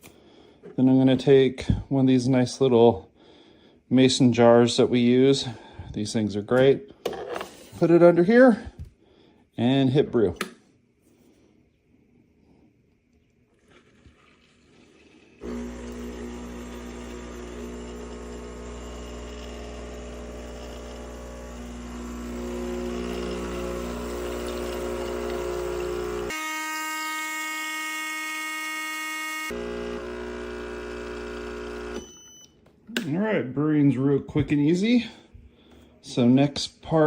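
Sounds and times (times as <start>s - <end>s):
espresso machine pump buzzing: 15.4s - 32.2s.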